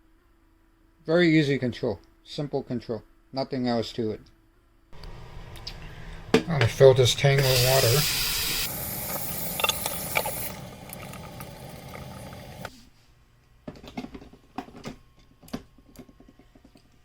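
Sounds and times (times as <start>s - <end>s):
water pouring into tank: 6.0s - 12.7s.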